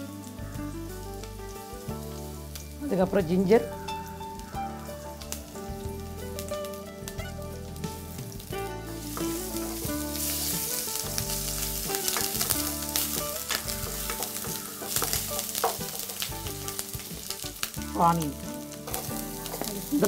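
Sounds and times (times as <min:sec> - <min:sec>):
garlic sizzling in hot oil: 0:00.0 - 0:20.0
wooden spatula scraping pan: 0:09.1 - 0:17.4, 0:18.7 - 0:20.0.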